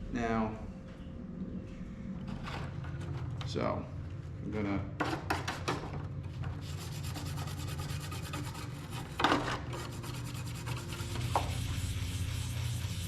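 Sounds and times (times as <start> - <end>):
scrubbing a saw blade: 6.6 - 13.0.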